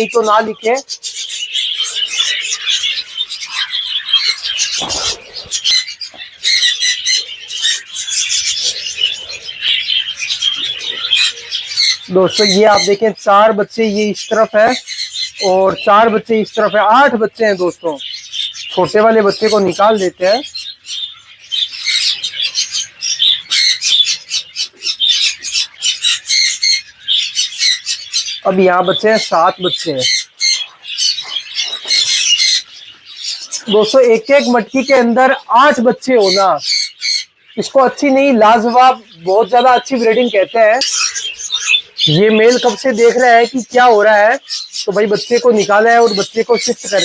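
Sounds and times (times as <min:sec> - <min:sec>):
budgerigars chattering and chirping: 0:00.0 - 0:47.0.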